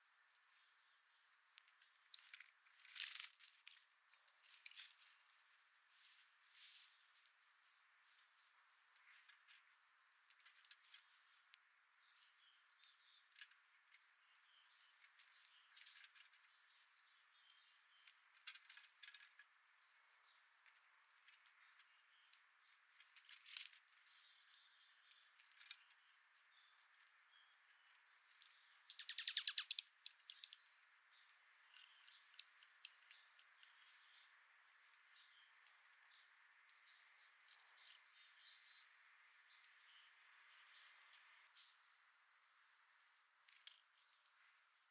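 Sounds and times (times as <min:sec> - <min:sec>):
songbirds chirping: 0:00.0 - 0:44.9
bird trill: 0:28.7 - 0:30.6.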